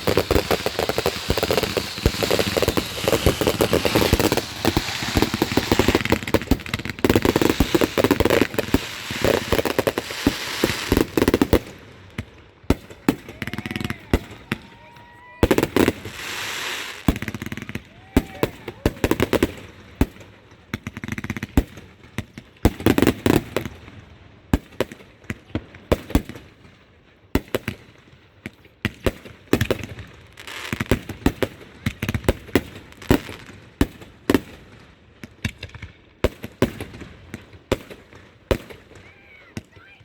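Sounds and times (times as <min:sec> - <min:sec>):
fireworks hissing: 0:00.0 - 0:11.7, 0:15.5 - 0:17.3
fireworks banging and crackling: 0:00.0 - 0:40.0.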